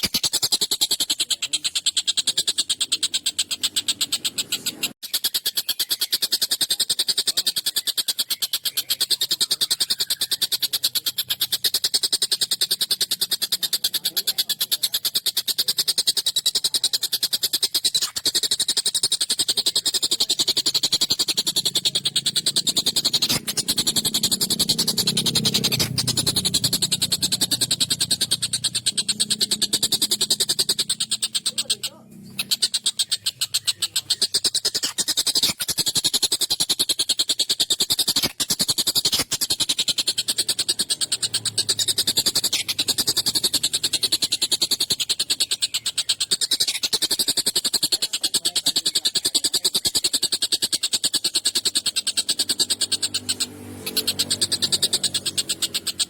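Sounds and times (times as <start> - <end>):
kingfisher harsh chattering call: 0.0 - 56.0.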